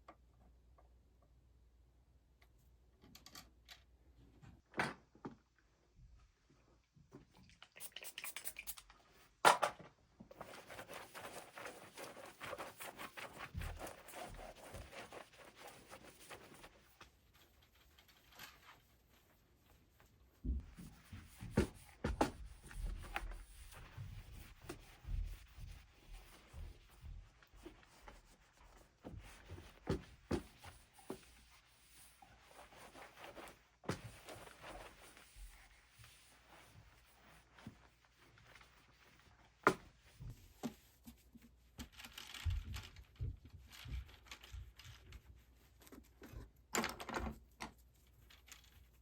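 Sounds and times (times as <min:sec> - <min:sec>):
rubbing and wiping on guitar: 0:10.4 - 0:41.7.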